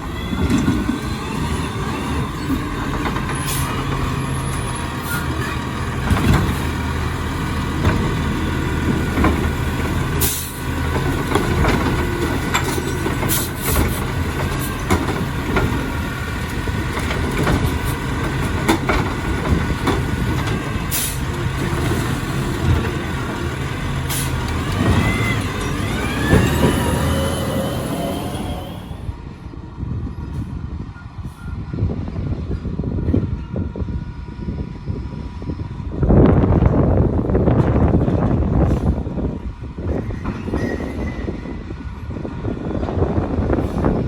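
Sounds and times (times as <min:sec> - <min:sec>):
garbage truck running: 0:00.0 - 0:44.0
knocks and clatters: 0:16.8 - 0:20.7
rising whines: 0:24.4 - 0:29.3.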